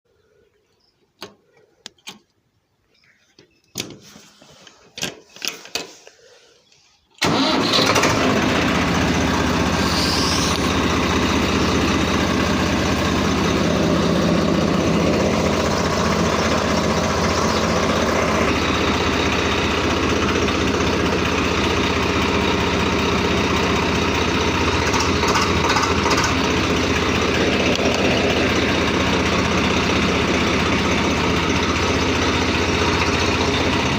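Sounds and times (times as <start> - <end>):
sharp clicks and knocks: 1.2 - 2.4
diesel tractor engine running: 7.2 - 33.9.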